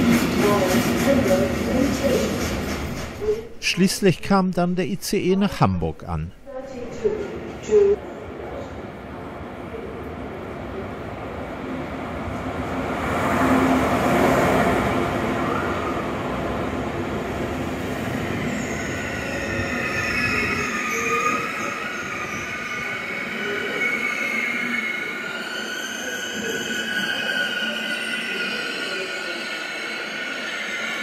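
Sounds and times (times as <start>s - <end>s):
train passing with loud rumble: 0.0s - 3.6s
high squeal of train brakes: 18.4s - 31.0s.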